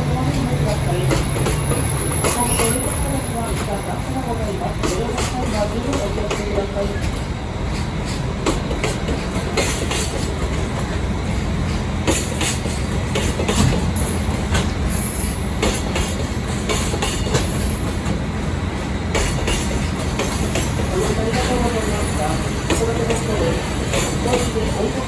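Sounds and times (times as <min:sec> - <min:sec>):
train rumbling on track: 0:00.0 - 0:25.0
wheels clicking on rail joints: 0:00.2 - 0:11.0, 0:11.6 - 0:18.3, 0:19.1 - 0:25.0.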